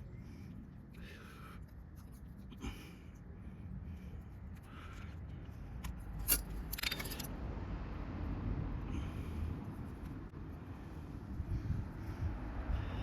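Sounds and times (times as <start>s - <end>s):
metal parts clicking: 6.1s - 7.3s
metallic jingle: 6.2s - 7.3s.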